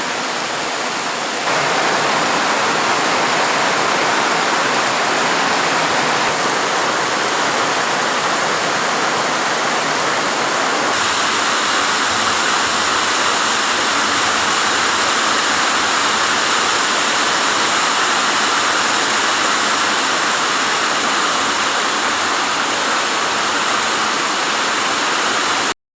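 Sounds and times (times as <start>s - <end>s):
heavy rain hissing: 0.0s - 25.8s.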